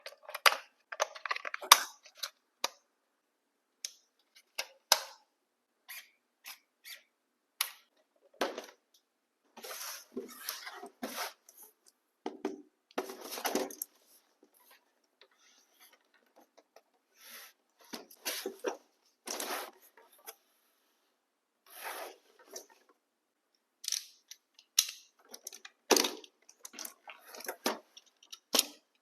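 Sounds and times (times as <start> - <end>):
packaging rustling and scraping: 9.6 - 11.7, 17.8 - 20.4.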